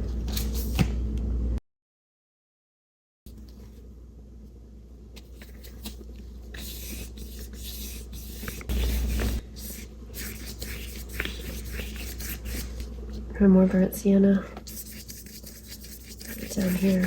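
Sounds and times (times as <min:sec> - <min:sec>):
steady low hum: 0:00.0 - 0:01.6, 0:03.3 - 0:17.0
paintbrush scratching on paper: 0:06.6 - 0:12.9, 0:14.6 - 0:17.0.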